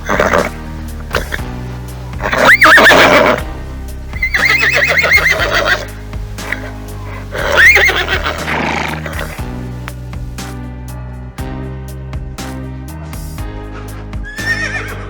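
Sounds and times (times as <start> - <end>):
animal calling loudly: 0.0 - 1.4, 2.2 - 3.5, 4.2 - 9.4, 14.3 - 15.0
background music: 0.0 - 15.0.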